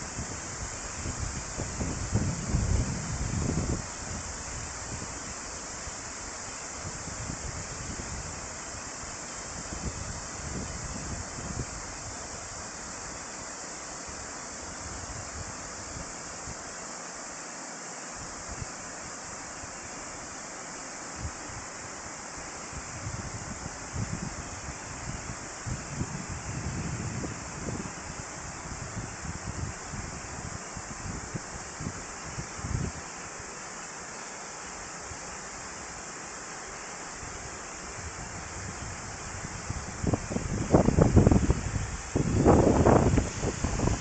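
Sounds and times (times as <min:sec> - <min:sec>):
wind buffeting microphone: 0:00.0 - 0:05.4, 0:09.5 - 0:12.7, 0:22.7 - 0:33.0, 0:37.2 - 0:44.0
waterfall rushing: 0:27.3 - 0:44.0.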